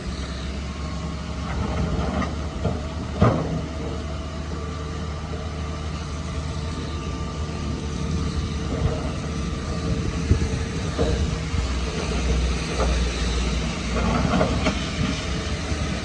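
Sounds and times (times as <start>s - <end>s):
heavy machinery engine running: 0.0s - 16.0s.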